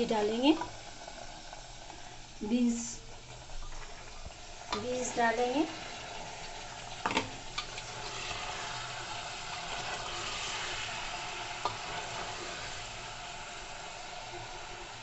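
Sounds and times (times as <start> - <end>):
food sizzling in a pot: 0.0 - 15.0
spatula stirring: 6.5 - 13.2.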